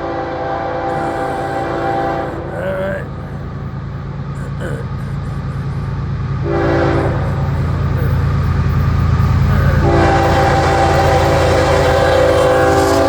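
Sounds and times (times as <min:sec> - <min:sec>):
locomotive air horn blasts: 0:00.0 - 0:00.9, 0:06.4 - 0:07.5, 0:08.7 - 0:13.0
low rumble of locomotive engine: 0:05.1 - 0:13.0.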